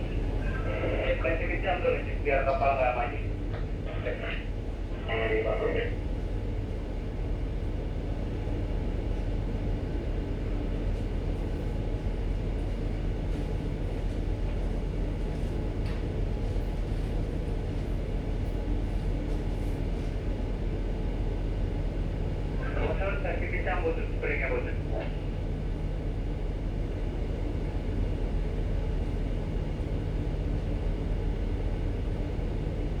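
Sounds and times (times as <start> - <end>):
ship engines rumbling: 0.0 - 15.1, 20.3 - 30.0.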